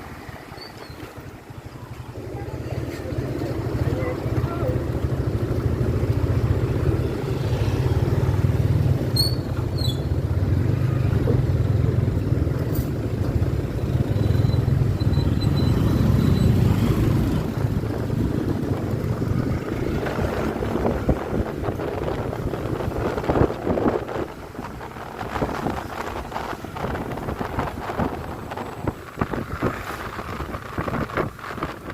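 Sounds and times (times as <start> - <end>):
wind rushing over microphone: 16.6 - 31.9.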